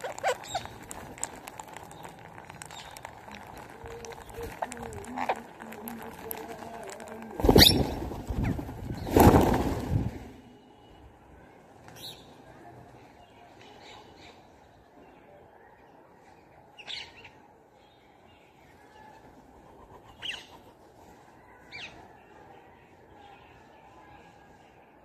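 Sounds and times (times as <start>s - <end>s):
high bird calls: 0.0s - 6.6s.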